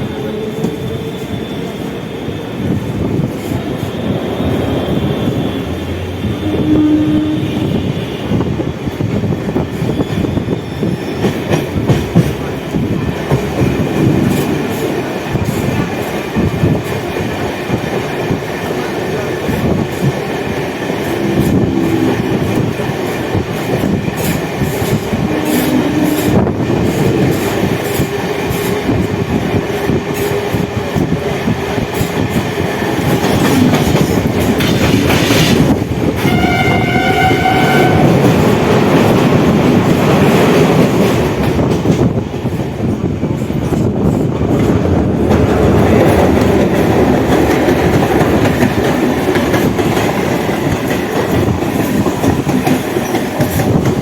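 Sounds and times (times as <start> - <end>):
train running: 0.0 - 54.0
train horn: 4.9 - 8.6, 25.1 - 26.6, 36.2 - 38.4.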